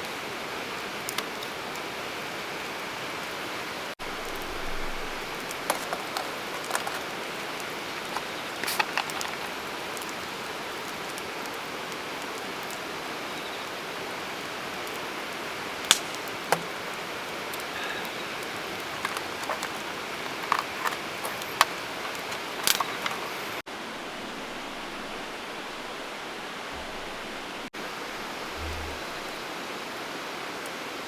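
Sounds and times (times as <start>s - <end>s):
campfire crackling: 0.0s - 30.8s
steady hiss: 0.0s - 31.0s.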